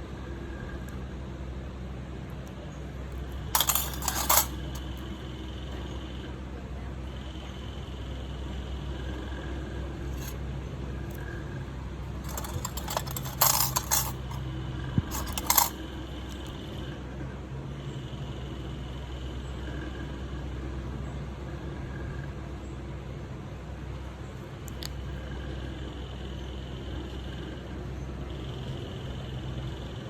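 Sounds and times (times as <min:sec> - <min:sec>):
metal tools clinking and scraping: 0:03.6 - 0:05.0, 0:10.2 - 0:10.4, 0:12.2 - 0:14.4, 0:15.1 - 0:16.5.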